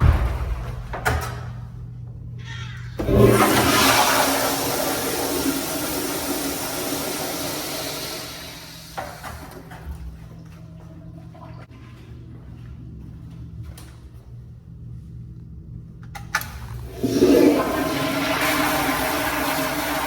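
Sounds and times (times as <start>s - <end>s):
toilet flushing: 3.0s - 10.3s, 16.4s - 20.0s.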